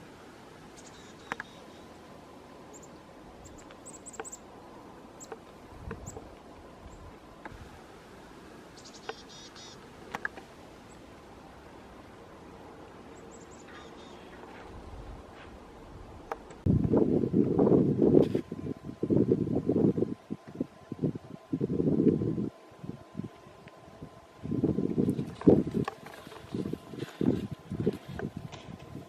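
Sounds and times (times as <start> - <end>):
faint outdoor hiss: 0.0 - 29.0
small birds chirping: 0.7 - 2.0, 2.7 - 4.5, 5.1 - 7.4, 8.7 - 11.1, 13.1 - 14.7.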